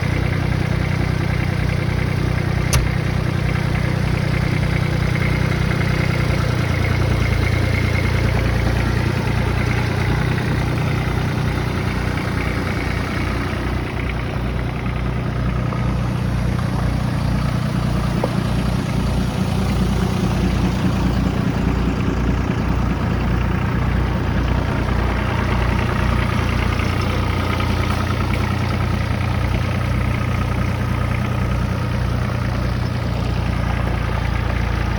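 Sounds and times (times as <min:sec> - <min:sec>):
diesel tractor engine idling: 0:00.0 - 0:34.9
sharp click: 0:02.7 - 0:03.1.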